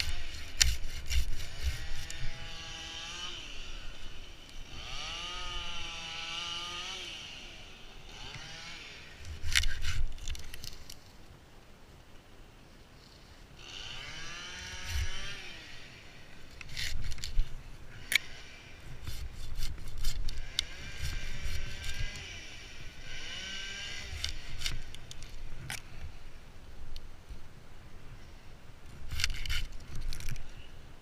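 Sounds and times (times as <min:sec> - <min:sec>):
small engine revving: 0:00.0 - 0:10.8, 0:13.6 - 0:25.9.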